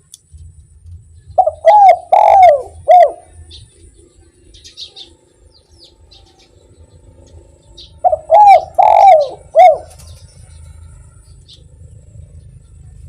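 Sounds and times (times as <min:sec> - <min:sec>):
small birds chirping: 0:00.0 - 0:13.0
dove cooing: 0:01.4 - 0:03.8, 0:07.7 - 0:11.7.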